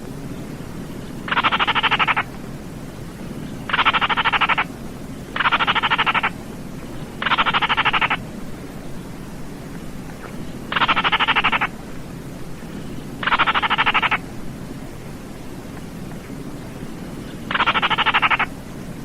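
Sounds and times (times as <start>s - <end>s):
low background hiss: 0.0s - 19.0s
bird rattling call: 1.3s - 2.3s, 3.6s - 4.7s, 5.4s - 6.4s, 7.2s - 8.2s, 10.7s - 11.7s, 13.2s - 14.2s, 17.2s - 18.5s.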